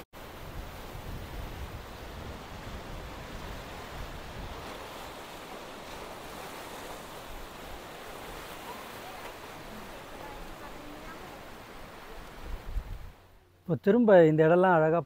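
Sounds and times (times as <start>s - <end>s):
sea surf washing on shore: 0.0s - 14.9s
wind rumble on microphone: 0.2s - 8.5s, 12.2s - 13.3s.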